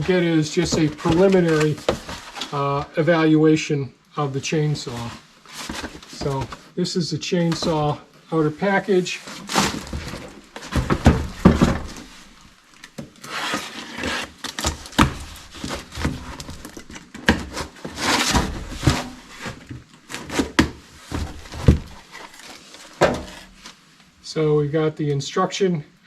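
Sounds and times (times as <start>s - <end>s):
scrapes rustles and knocks: 0.0s - 2.6s, 4.8s - 6.8s, 9.0s - 23.9s
packaging box being opened: 0.6s - 2.6s, 9.2s - 23.8s.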